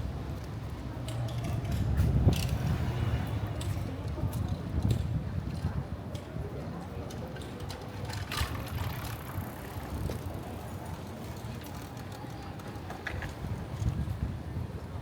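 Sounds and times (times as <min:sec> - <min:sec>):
traffic rumble: 0:07.6 - 0:13.8.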